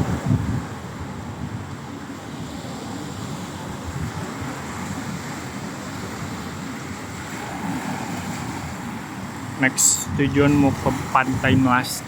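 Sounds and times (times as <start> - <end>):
wind on microphone: 0.0 - 12.0
surf hissing: 6.0 - 12.0.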